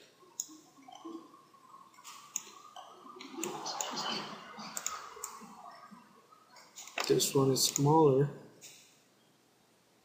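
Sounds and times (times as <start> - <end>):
computer mouse and keyboard clicks: 2.0 - 5.5, 6.6 - 8.0.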